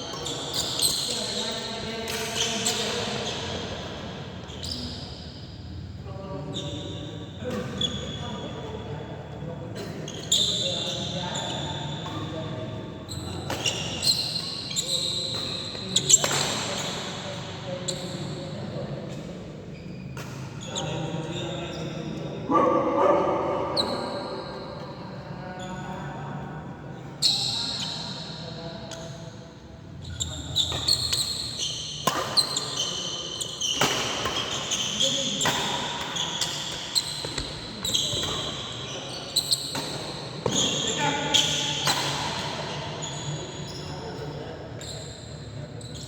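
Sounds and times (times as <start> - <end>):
shoe squeaks on court floor: 0.0 - 5.5, 6.4 - 8.9, 9.8 - 18.8, 19.7 - 22.3, 27.2 - 29.3, 30.0 - 46.0
racket hitting shuttlecock: 32.0 - 32.8.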